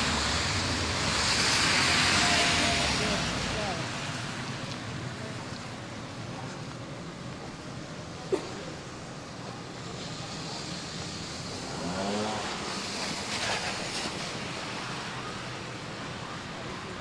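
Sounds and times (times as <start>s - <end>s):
car tyres on snowy street: 0.0s - 17.0s.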